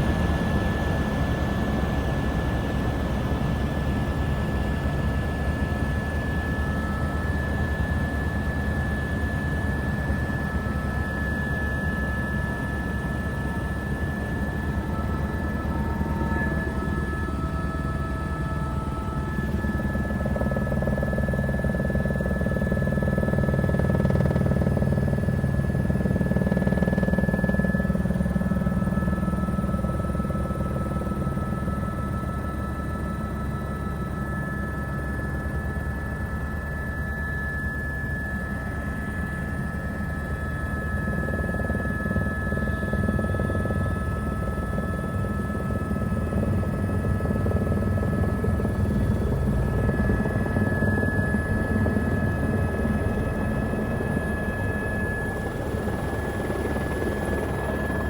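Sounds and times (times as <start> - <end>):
helicopter rotor drone: 0.0 - 58.0.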